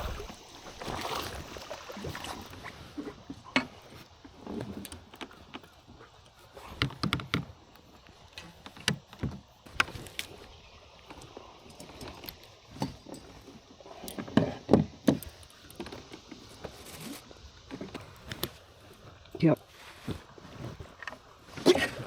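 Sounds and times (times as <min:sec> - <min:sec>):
knocks and thumps in kayak: 0:00.0 - 0:10.2, 0:14.2 - 0:16.9.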